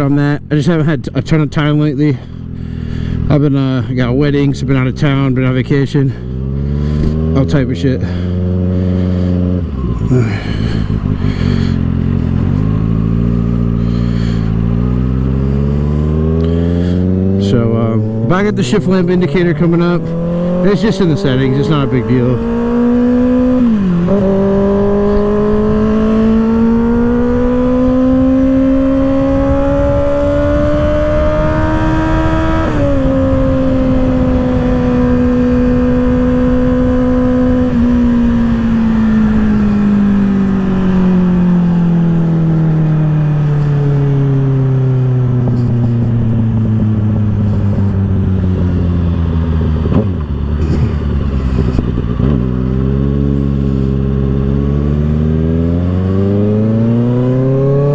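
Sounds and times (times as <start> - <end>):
motorcycle engine revving: 2.1 - 57.9
wind noise: 8.4 - 14.8, 20.0 - 43.0, 43.7 - 54.7.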